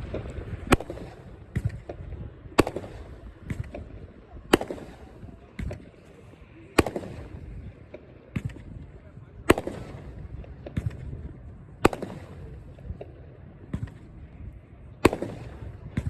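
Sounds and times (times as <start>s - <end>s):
firework bangs: 0.0s - 16.0s.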